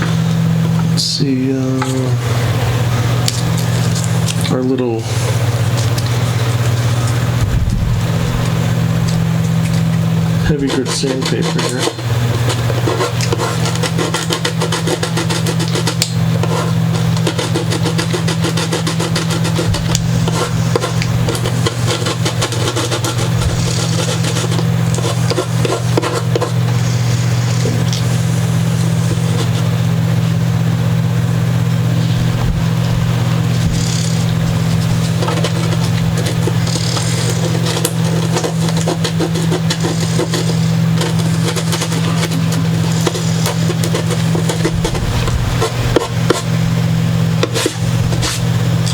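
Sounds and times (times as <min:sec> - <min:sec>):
steady low hum: 0:00.0 - 0:48.9
sandpaper scratching: 0:10.4 - 0:29.7, 0:33.6 - 0:46.5, 0:47.4 - 0:48.6.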